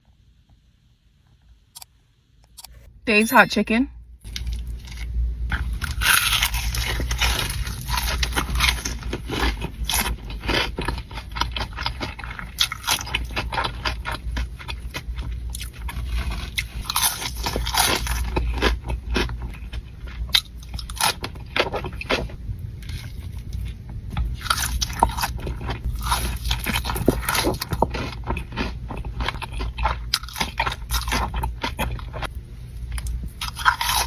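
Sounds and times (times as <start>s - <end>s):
low steady hum: 0.0s - 34.0s
crunchy chewing of fried chicken: 4.2s - 34.0s.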